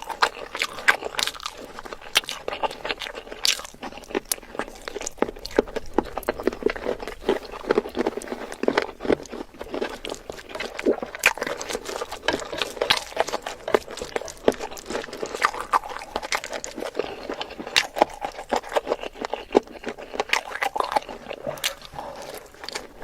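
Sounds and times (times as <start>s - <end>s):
crunching: 0.0s - 23.0s
wet chewing: 0.0s - 23.0s
mouth smacks: 19.1s - 23.0s.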